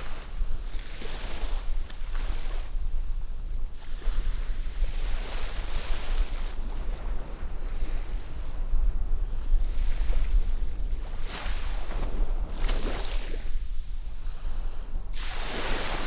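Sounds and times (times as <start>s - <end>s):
wind on microphone: 0.0s - 16.0s
distant ocean waves: 5.5s - 16.0s.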